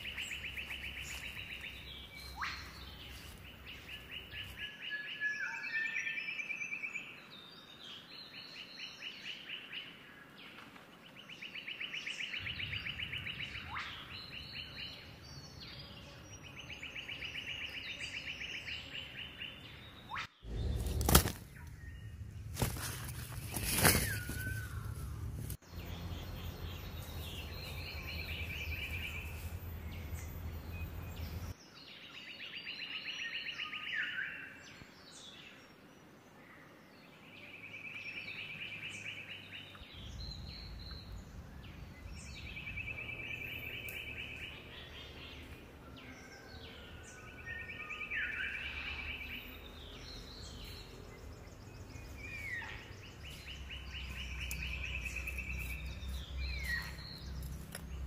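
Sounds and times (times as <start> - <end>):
other birds calling: 0.0 - 4.8, 12.4 - 31.6, 38.2 - 58.0
low rumbling background: 20.5 - 31.6, 39.8 - 46.3.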